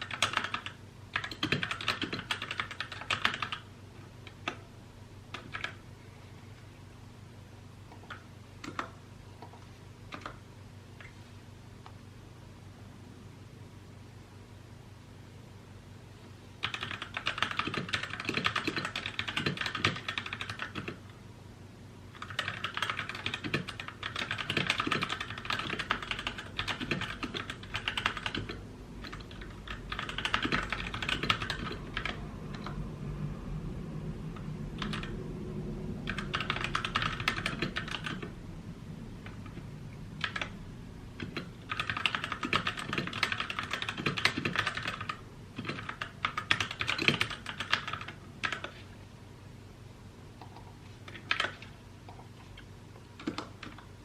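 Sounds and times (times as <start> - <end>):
mechanical keyboard typing: 0.0 - 4.6, 5.3 - 5.8, 7.9 - 10.4, 16.6 - 21.0, 22.1 - 32.8, 34.4 - 35.2, 36.0 - 38.3, 40.2 - 40.5, 41.2 - 48.8, 50.4 - 52.6, 53.2 - 53.9.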